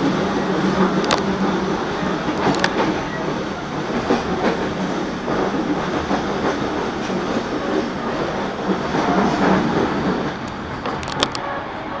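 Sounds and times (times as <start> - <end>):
train wheels rumbling: 0.0 - 12.0
clicks over the track: 0.9 - 1.5, 2.4 - 2.9, 10.4 - 11.4.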